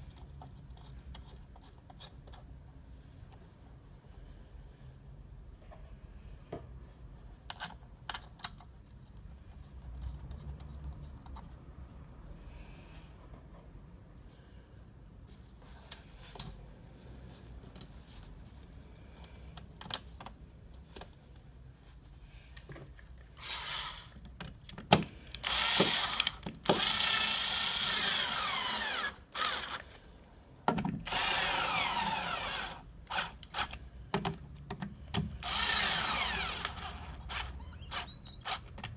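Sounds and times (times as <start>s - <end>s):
tools and parts clicking: 7.4s - 9.2s
power drill-driver motor whine: 23.4s - 24.2s, 25.4s - 29.8s, 31.1s - 33.7s, 35.4s - 38.6s.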